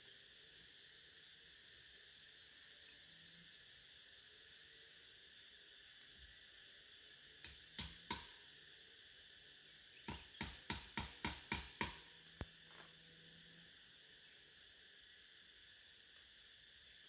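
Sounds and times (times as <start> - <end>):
high insect-like hum: 0.0 - 17.0.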